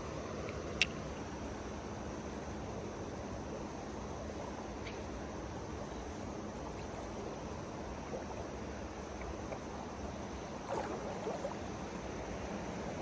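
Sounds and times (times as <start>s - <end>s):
flowing river water: 3.2s - 13.0s.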